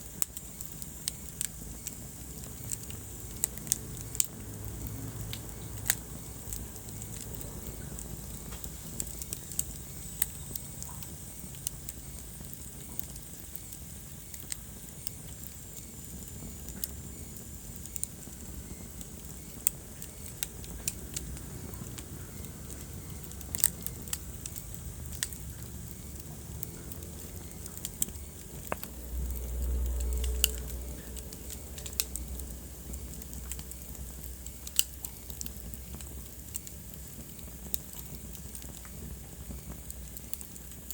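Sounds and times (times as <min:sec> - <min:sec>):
low rumble of flame: 0:00.0 - 0:40.9
wood fire crackling and popping: 0:00.0 - 0:40.9.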